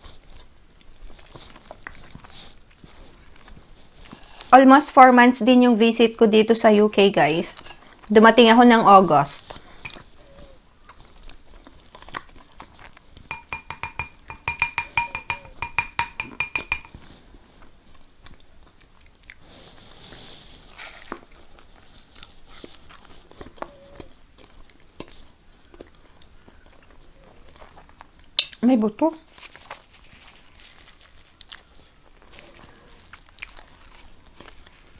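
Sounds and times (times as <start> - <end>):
chewing: 0.0 - 4.5, 9.5 - 13.3, 16.9 - 28.6, 29.2 - 34.9
cutlery tapping a plate: 13.3 - 17.0
small clinks: 13.3 - 17.0.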